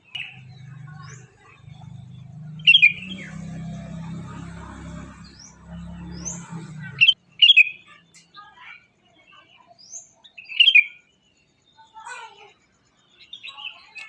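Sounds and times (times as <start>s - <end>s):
steady low hum: 0.0s - 7.2s
birds chirping: 0.0s - 14.0s.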